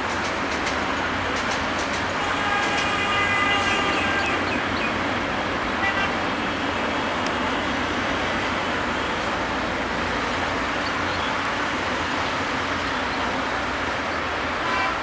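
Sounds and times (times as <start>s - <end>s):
road traffic: 0.0s - 15.0s
train running: 0.0s - 15.0s
train horn: 2.2s - 4.5s, 5.8s - 6.2s, 14.6s - 15.0s.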